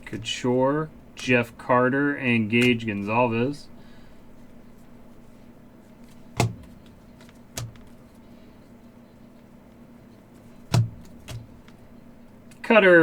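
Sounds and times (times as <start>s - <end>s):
steady low hum: 0.0s - 13.0s
cards tapping on a table: 6.4s - 8.0s, 10.6s - 11.8s.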